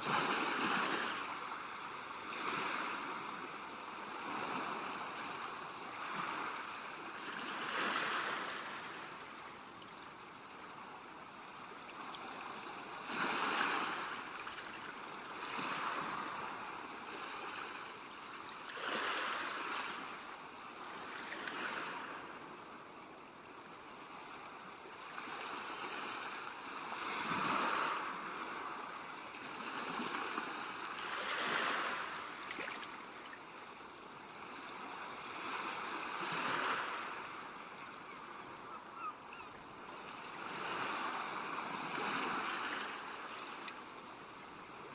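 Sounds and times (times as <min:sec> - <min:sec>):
sea waves washing onto shore: 0:00.0 - 0:09.6, 0:10.4 - 0:17.8, 0:25.1 - 0:39.0.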